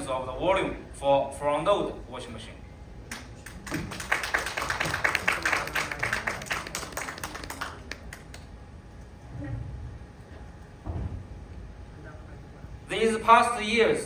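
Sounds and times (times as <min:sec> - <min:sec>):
audience applauding: 0:03.1 - 0:08.5.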